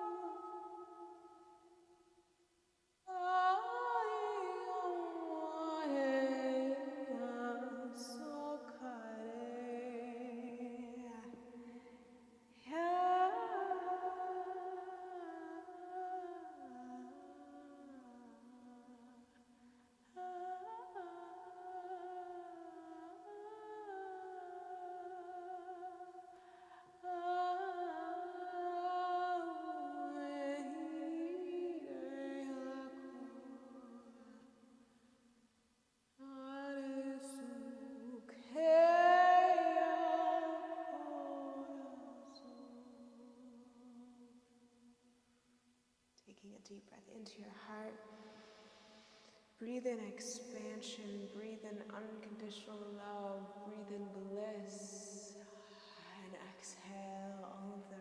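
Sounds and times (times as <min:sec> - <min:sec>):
person singing held tones: 0:00.0 - 0:01.7.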